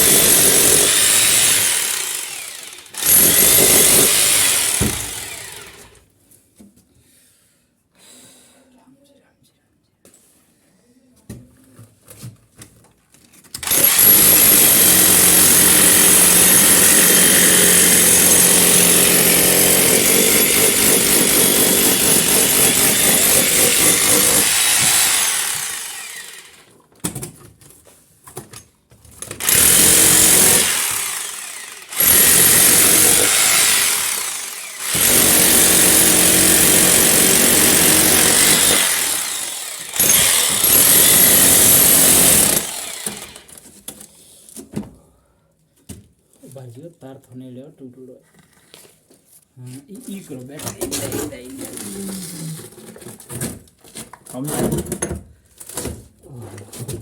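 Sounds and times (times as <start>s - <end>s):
hammer drill into masonry: 0.0s - 6.0s, 13.6s - 26.7s, 29.4s - 43.8s.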